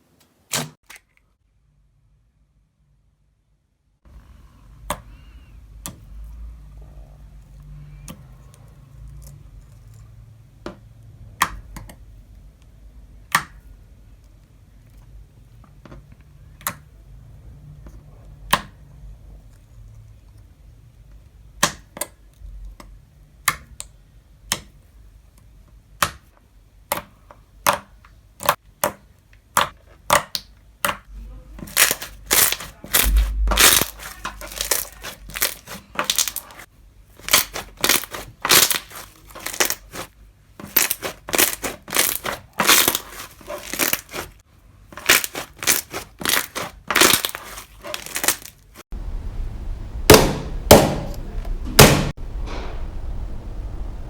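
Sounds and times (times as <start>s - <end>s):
crunchy slime squeezed by hand: 31.6s - 36.6s, 37.2s - 40.1s, 40.7s - 44.4s, 45.0s - 48.6s.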